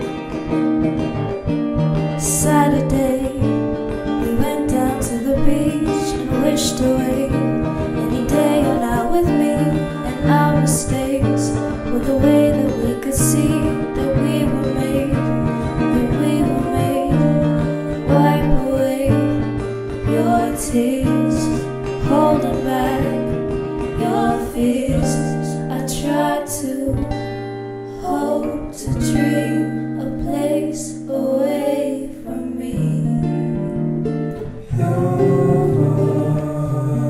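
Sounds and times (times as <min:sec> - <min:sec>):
acoustic guitar: 0:00.0 - 0:37.0
person singing: 0:04.2 - 0:19.4, 0:20.0 - 0:27.1, 0:34.5 - 0:37.0.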